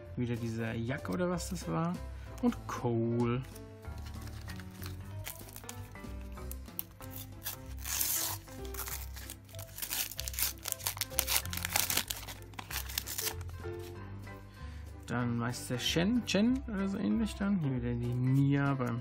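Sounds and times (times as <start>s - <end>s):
background music: 0.0s - 19.0s
foil packet tearing: 3.9s - 13.6s
wrapper crinkling: 3.9s - 13.6s.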